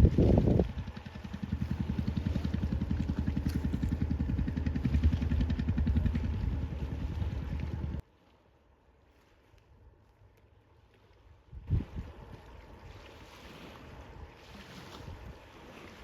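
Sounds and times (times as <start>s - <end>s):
motor engine running: 0.0s - 8.0s.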